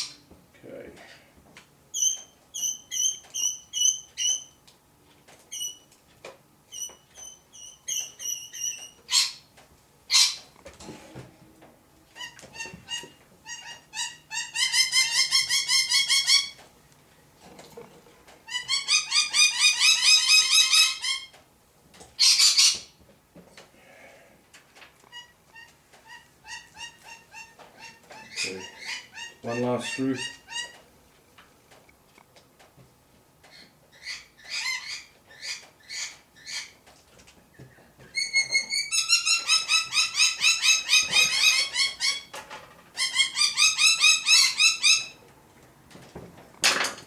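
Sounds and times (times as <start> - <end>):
bird chirping and trilling: 1.9 - 4.6, 6.7 - 9.4, 26.1 - 30.8
bird squawks: 25.1 - 30.8, 38.2 - 42.3.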